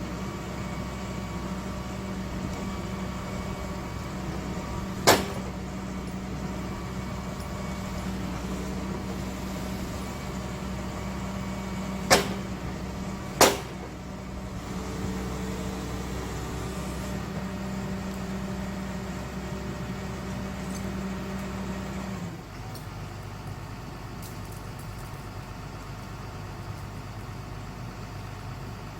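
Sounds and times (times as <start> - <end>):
excavator diesel engine running: 0.0 - 28.9
sharp knocks: 5.0 - 5.5, 12.1 - 12.6, 13.4 - 13.9.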